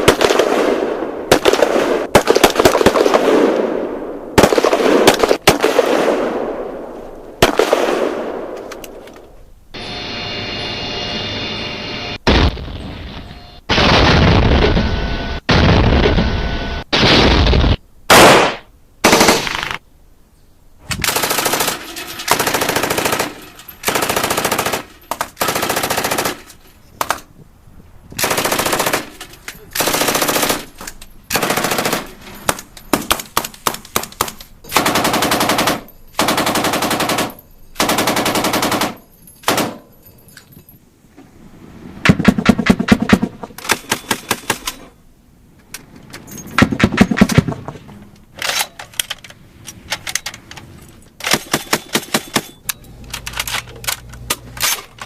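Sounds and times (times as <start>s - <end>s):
single gunshots: 16.9s - 19.8s
automatic gunfire bursts: 28.2s - 29.1s, 29.8s - 30.7s, 31.3s - 32.1s, 34.7s - 39.8s.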